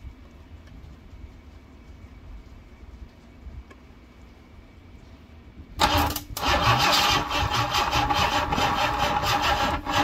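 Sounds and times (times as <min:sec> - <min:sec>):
engine cranking by starter motor: 0:05.8 - 0:10.0.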